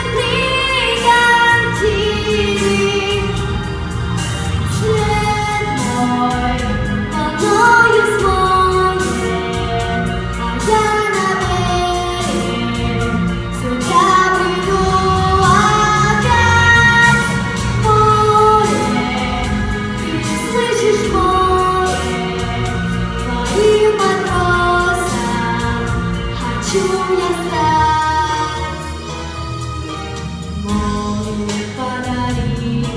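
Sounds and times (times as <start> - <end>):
instrumental accompaniment with beat: 0.0 - 32.9
high solo singing voice: 10.6 - 28.9.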